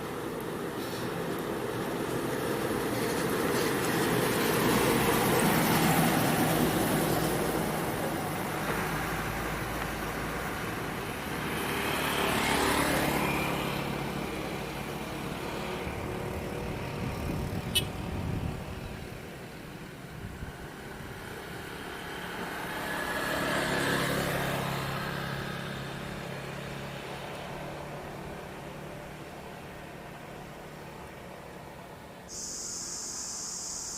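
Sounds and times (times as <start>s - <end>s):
vehicles driving past: 0.0s - 33.9s.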